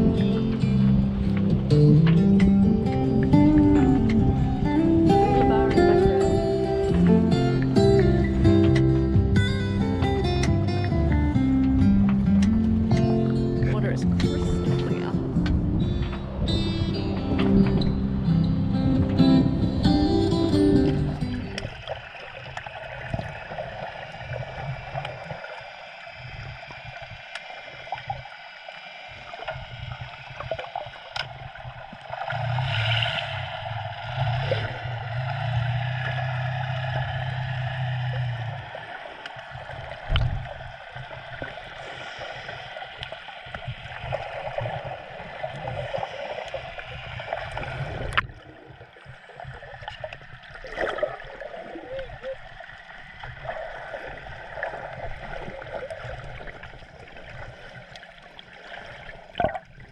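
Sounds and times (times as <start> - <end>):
low hum: 0.0 - 59.9
water sloshing along hull: 0.0 - 59.9.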